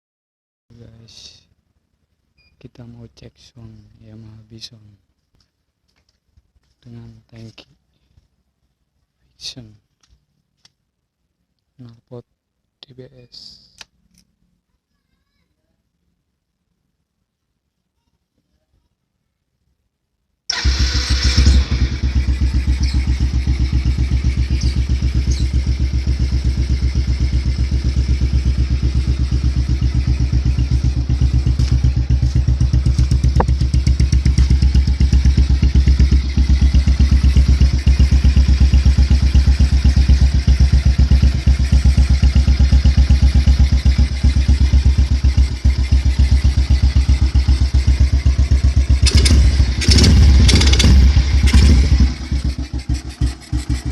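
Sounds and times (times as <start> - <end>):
motorcycle engine idling: 20.5 - 53.9.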